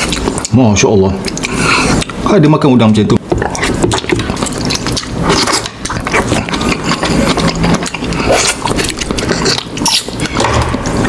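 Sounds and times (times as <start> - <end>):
chewing and wet mouth sounds: 0.0 - 2.3, 3.1 - 11.0.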